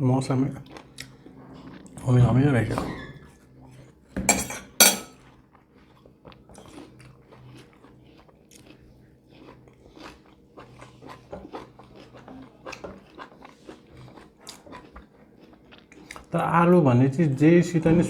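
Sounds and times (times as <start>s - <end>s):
crunchy chewing: 5.2s - 16.4s.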